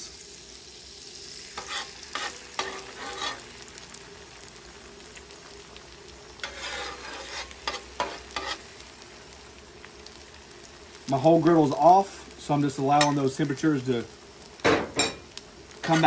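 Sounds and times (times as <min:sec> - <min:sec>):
meat sizzling on a griddle: 0:00.0 - 0:16.0
spatula scraping a griddle: 0:01.4 - 0:04.0, 0:06.4 - 0:08.8.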